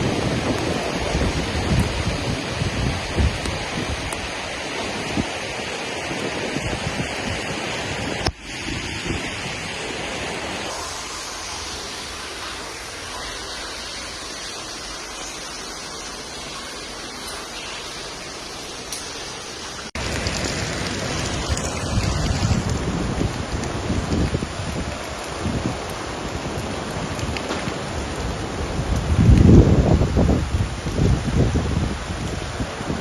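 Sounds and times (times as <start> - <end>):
heavy rain: 0.0 - 33.0
rushing floodwater: 0.0 - 33.0.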